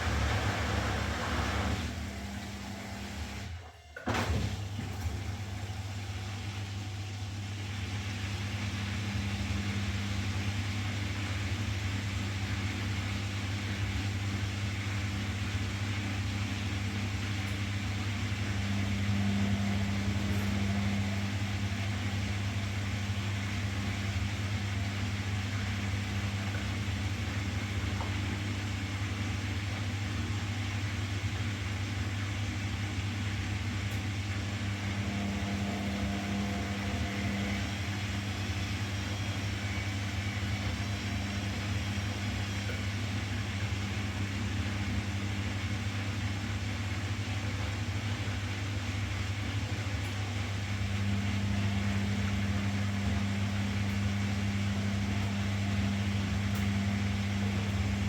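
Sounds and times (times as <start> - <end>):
washing machine running: 0.0 - 58.0.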